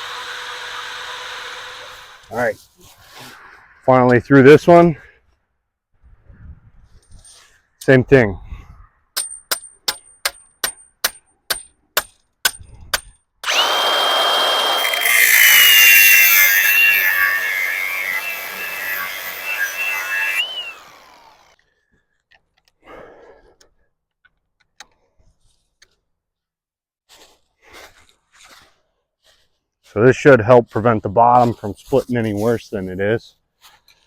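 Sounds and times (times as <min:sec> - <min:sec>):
power tool whining: 0:00.0 - 0:02.3, 0:13.4 - 0:21.6.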